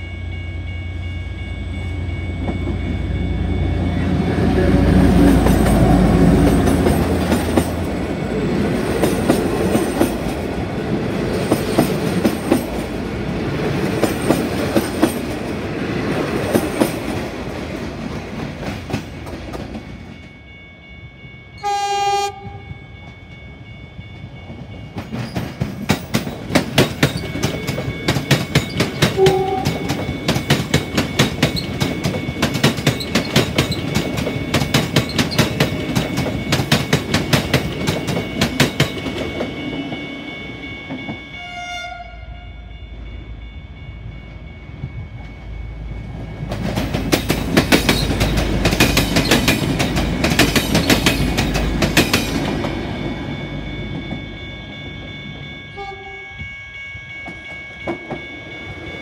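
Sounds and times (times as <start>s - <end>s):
passenger train rumbling past: 0.0s - 59.0s
train horn blast: 21.6s - 22.8s, 29.2s - 30.0s, 41.3s - 42.7s, 55.7s - 56.6s
wheels clacking over rail joints: 24.4s - 40.0s, 46.4s - 53.2s.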